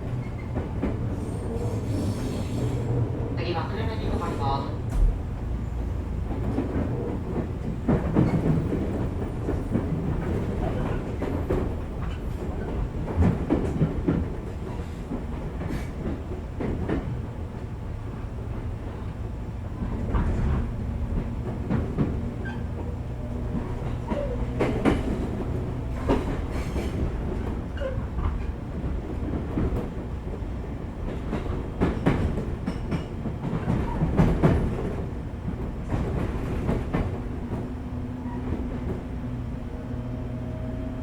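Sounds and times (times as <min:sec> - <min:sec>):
wheels rumbling on rail: 0:00.0 - 0:41.0
wheels clacking over rail joints: 0:19.7 - 0:30.4.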